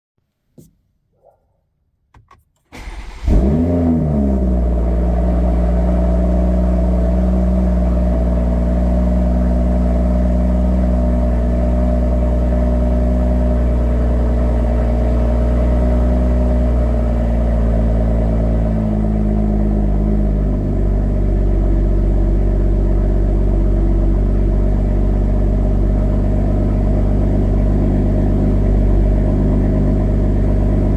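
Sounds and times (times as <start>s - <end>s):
car engine cold start idling: 2.7s - 6.3s.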